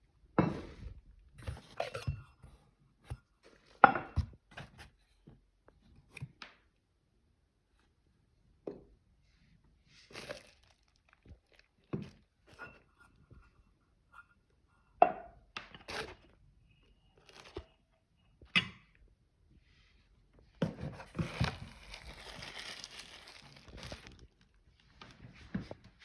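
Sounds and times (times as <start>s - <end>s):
packaging tearing: 21.2s - 24.6s.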